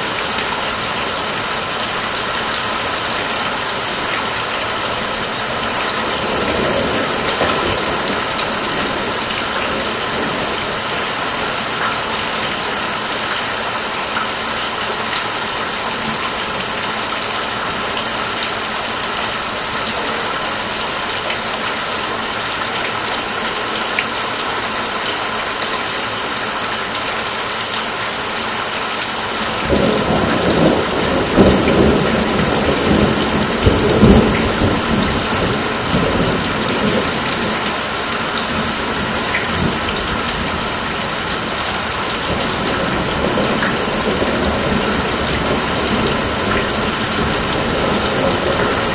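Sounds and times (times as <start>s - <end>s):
steady rain: 0.0s - 48.9s
thunder rumbling and cracking: 5.2s - 11.9s, 29.5s - 37.8s, 38.4s - 48.9s.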